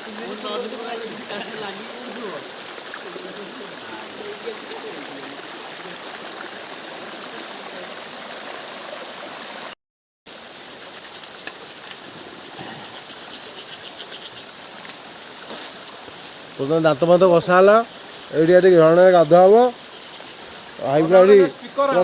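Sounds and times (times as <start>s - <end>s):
waterfall rushing: 0.0s - 9.8s.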